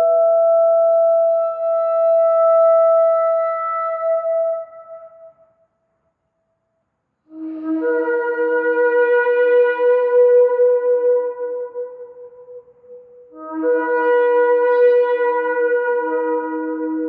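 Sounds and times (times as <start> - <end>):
shofar blast: 13.4 - 17.0.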